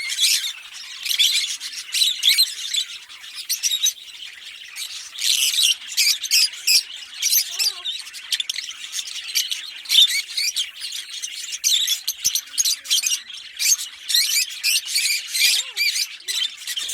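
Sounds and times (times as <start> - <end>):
lovebirds chirping and squawking: 0.0 - 16.9.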